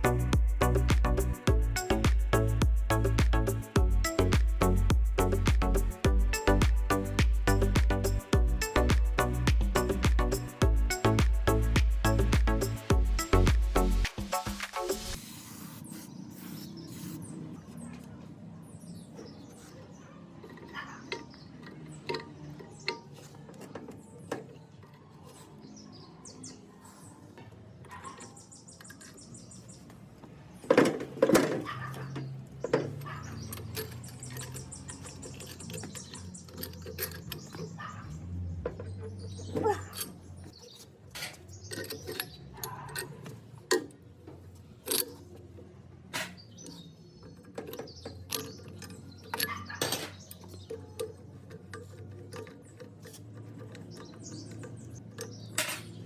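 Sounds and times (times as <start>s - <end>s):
metal tools clinking and knocking: 19.1s - 25.0s, 27.4s - 56.0s.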